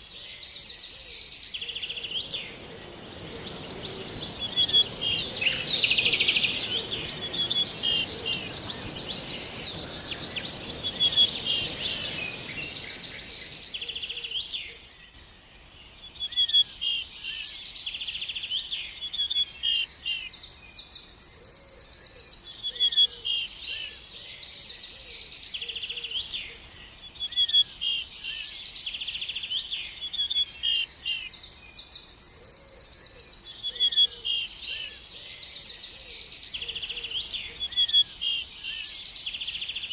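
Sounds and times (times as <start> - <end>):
songbird trilling and chirping: 1.7 - 14.5
steady hiss: 1.8 - 14.5.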